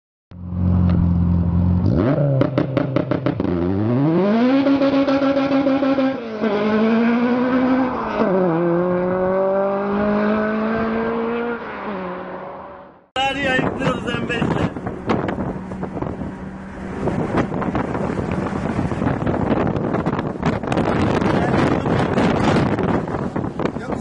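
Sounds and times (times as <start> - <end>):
car engine revving and accelerating: 0.4 - 24.0
sharp exhaust pops: 14.7 - 16.2, 17.2 - 24.0.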